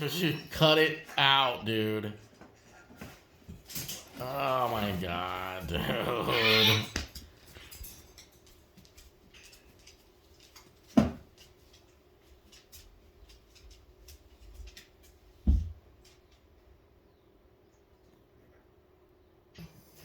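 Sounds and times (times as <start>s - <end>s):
bird clicking and scratching in cage: 7.0s - 15.1s.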